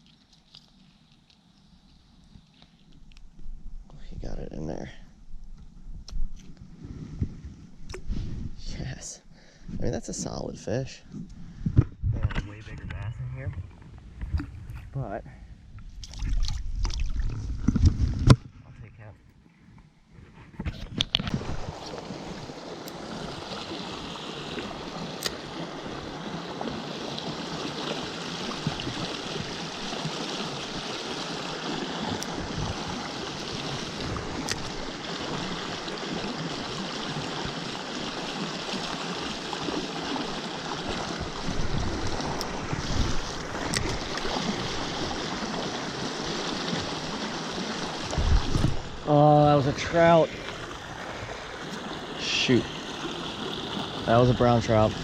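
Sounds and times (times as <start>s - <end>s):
stream water rushing over rapids: 21.3s - 55.0s.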